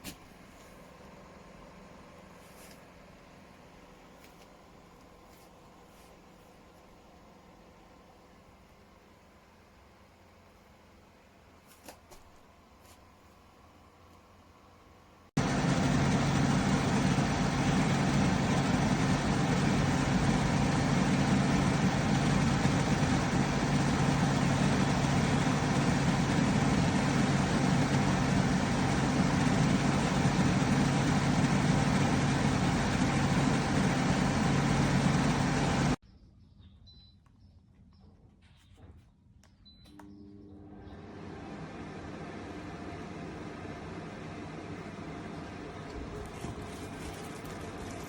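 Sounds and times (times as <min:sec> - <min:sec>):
air conditioner hum: 0:00.0 - 0:36.0, 0:39.9 - 0:48.0
fan air rushing: 0:15.4 - 0:36.0.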